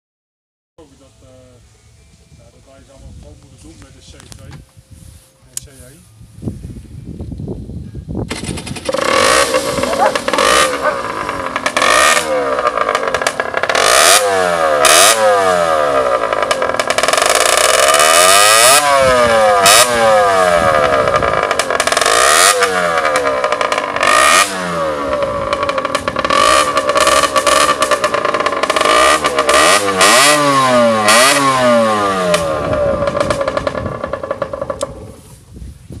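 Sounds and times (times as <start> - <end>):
sharp exhaust pops: 8.2 - 35.3
two-stroke engine revving: 8.3 - 35.2.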